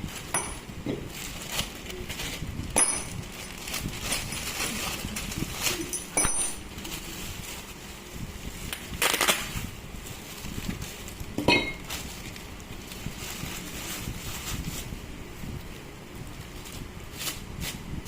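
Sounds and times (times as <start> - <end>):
metal tools clinking: 5.8 - 6.7, 11.4 - 11.9.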